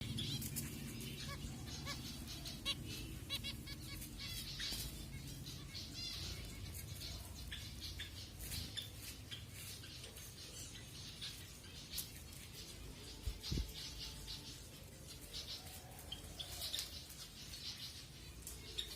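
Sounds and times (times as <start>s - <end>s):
finches chirping: 0.0s - 14.5s.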